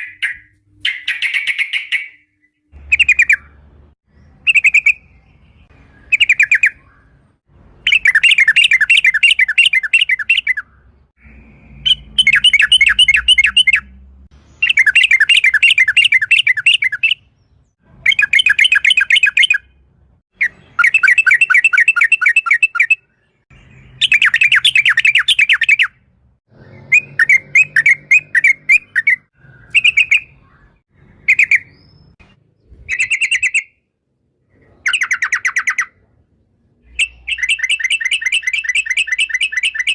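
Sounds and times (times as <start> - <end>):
bird singing rolling chatter: 0.0 - 33.9, 34.5 - 39.9.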